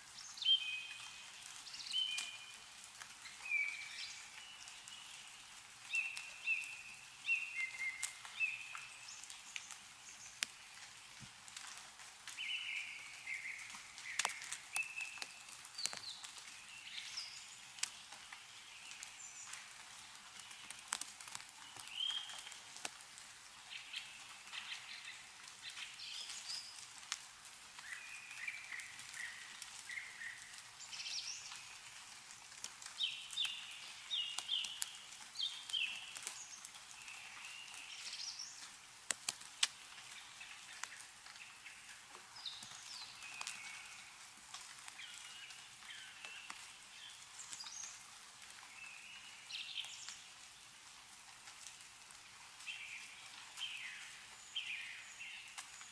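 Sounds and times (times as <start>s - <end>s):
meltwater dripping from trees: 0.0s - 55.9s
small birds chirping: 0.0s - 55.9s.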